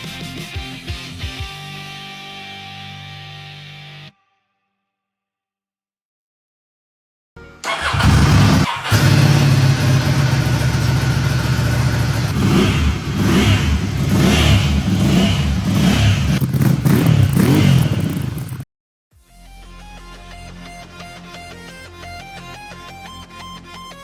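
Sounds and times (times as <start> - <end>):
motorcycle engine revving: 7.6 - 18.6.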